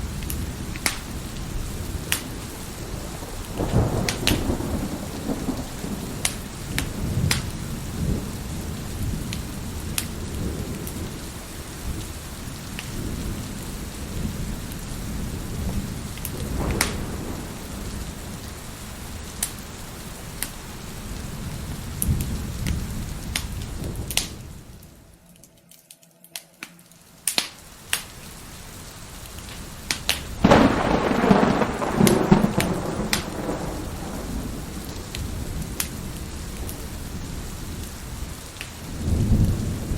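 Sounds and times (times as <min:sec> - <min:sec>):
rolling thunder: 0:00.0 - 0:20.4, 0:30.1 - 0:39.9
wood fire crackling: 0:00.0 - 0:39.5
steady rain: 0:00.0 - 0:39.9.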